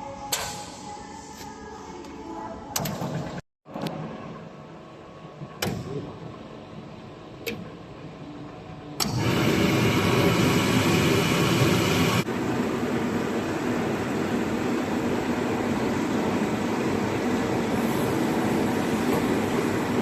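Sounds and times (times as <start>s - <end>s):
glass washing machine hum: 4.0s - 20.0s.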